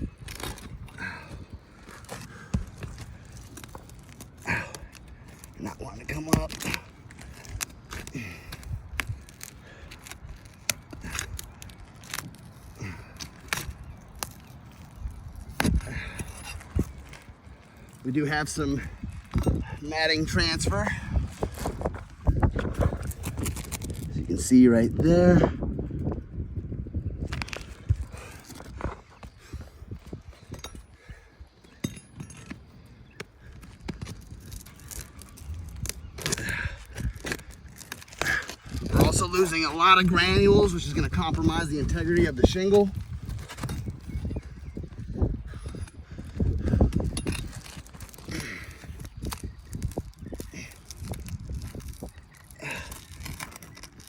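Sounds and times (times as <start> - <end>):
tools scraping roof shingle: 0.0 - 24.1, 27.3 - 54.0.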